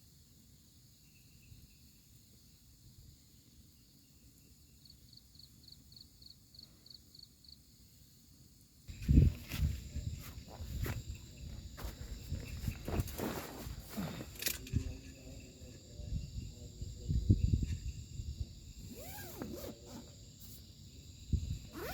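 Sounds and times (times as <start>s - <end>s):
insect chirping: 0.0s - 21.9s
insects droning: 0.0s - 21.9s
rustling: 11.8s - 15.0s.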